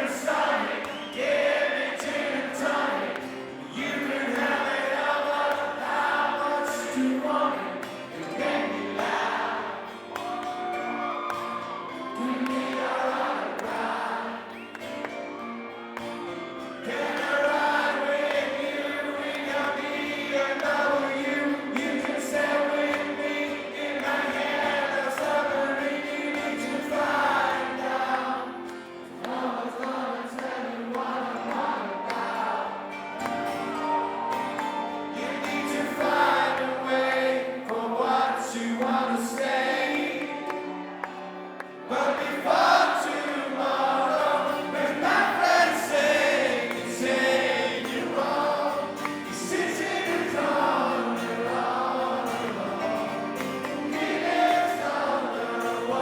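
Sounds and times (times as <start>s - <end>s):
man singing: 0.0s - 9.7s, 16.9s - 28.6s, 35.1s - 40.9s, 41.9s - 56.0s
audience singing along: 0.0s - 56.0s
strummed acoustic guitar: 0.0s - 56.0s.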